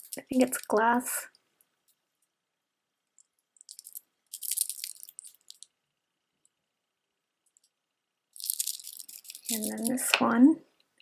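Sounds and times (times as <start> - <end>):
beads clicking and clattering: 0.0 - 0.7, 3.2 - 5.7, 8.3 - 10.1.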